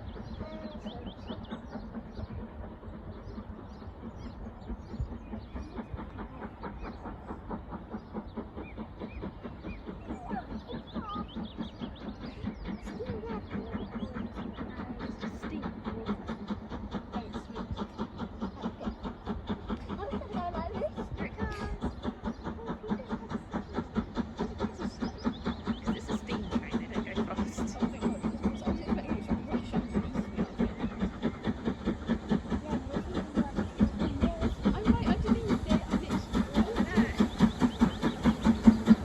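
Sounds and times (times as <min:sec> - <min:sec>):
steam train running: 0:00.0 - 0:39.0.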